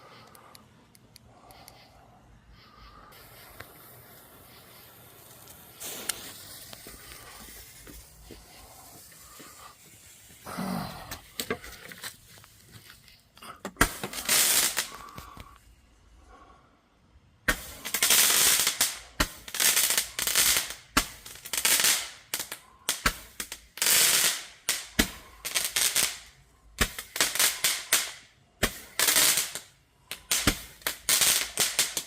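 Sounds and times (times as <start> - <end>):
firework sharp pops: 3.1 - 10.4, 13.6 - 15.6, 17.5 - 32.0
dense firework crackling: 3.1 - 12.6, 13.8 - 15.6, 17.4 - 32.0.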